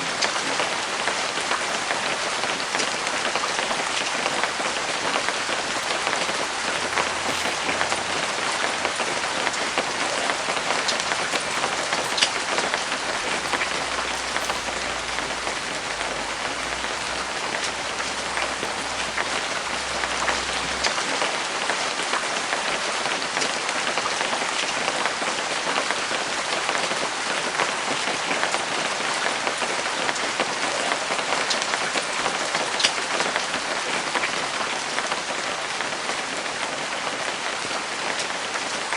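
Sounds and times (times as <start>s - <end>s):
light rain falling: 0.0s - 21.0s.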